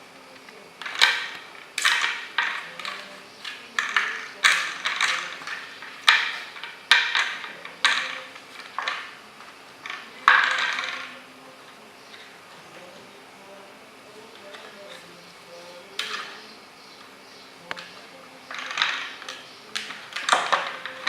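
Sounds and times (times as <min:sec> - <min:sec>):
toy knocking and rattling: 0:00.8 - 0:09.2, 0:09.8 - 0:11.3, 0:15.8 - 0:16.5, 0:17.6 - 0:21.0.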